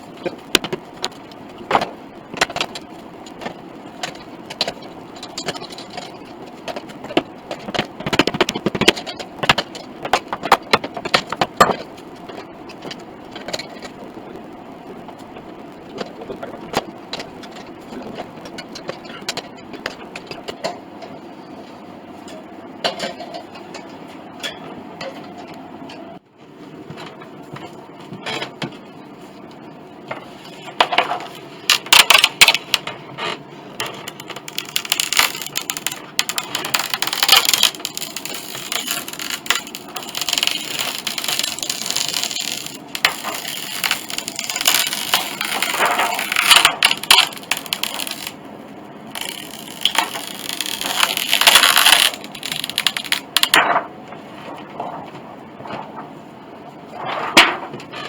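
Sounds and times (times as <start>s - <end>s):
scraping and rubbing on wood: 30.2s - 48.4s, 49.1s - 55.0s.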